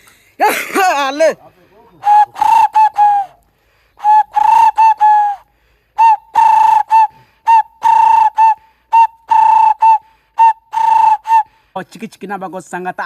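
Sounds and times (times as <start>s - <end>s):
boy whistling bird calls: 2.0s - 11.5s.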